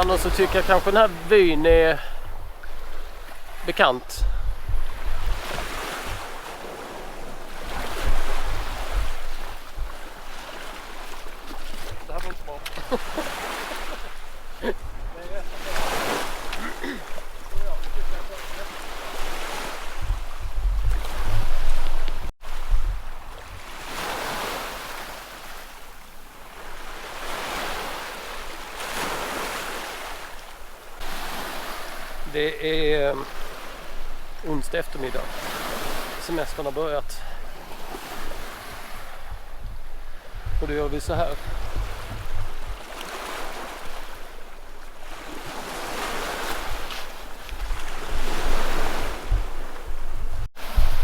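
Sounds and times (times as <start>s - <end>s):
wind rumbling on microphone: 0.0s - 24.4s, 37.4s - 51.0s
sea waves washing onto shore: 0.0s - 51.0s.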